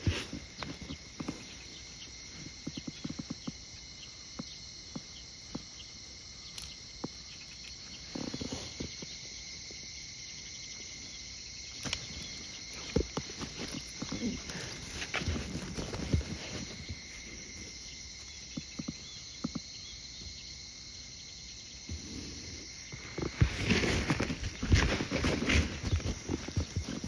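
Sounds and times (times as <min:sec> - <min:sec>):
insects chirping: 0:00.0 - 0:27.0
soft rustle: 0:12.4 - 0:18.6, 0:21.9 - 0:27.0
footsteps walking: 0:22.9 - 0:27.0.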